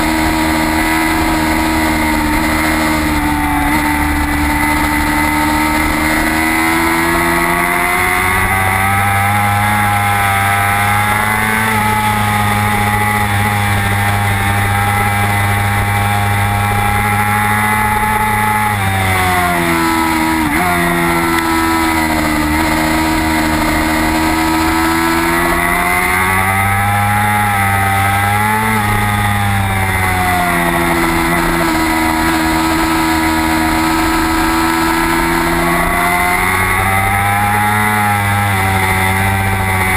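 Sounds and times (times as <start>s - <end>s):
racing motorcycle engine: 0.0s - 39.9s.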